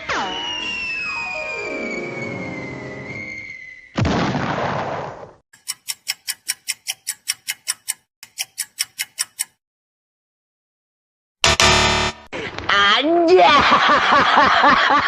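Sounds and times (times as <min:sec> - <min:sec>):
cartoon falling whistle: 0:00.0 - 0:04.0
cartoon explosion burst: 0:04.0 - 0:05.3
rapid sharp ticks: 0:05.6 - 0:09.6.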